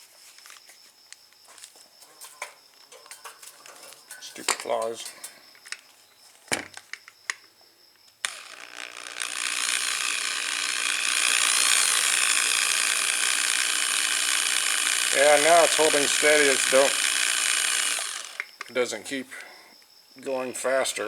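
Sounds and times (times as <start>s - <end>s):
drill spinning: 8.2s - 18.5s.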